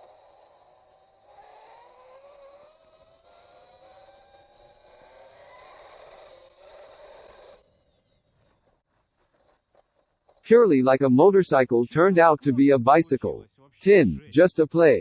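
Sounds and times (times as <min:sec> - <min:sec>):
electric motor whining: 0:00.0 - 0:10.4.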